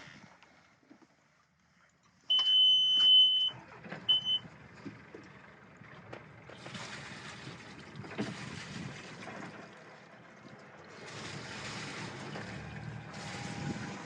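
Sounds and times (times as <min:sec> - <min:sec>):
high buzzer beeps: 0:02.3 - 0:03.5
wind noise: 0:07.4 - 0:09.4, 0:13.2 - 0:14.0.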